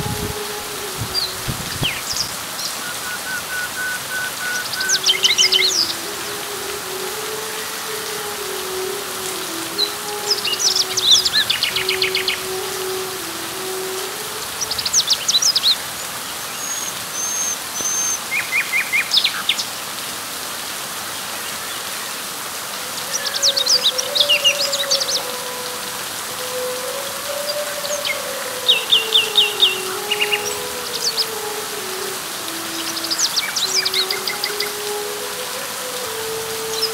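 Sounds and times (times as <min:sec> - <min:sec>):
birds chirping: 0:00.0 - 0:19.7, 0:23.0 - 0:36.9
rain falling on leaves: 0:00.0 - 0:36.9.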